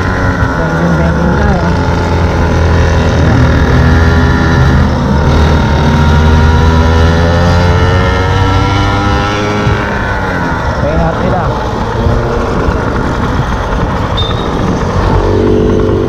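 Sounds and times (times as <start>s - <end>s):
scooter engine buzzing: 0.0s - 16.0s.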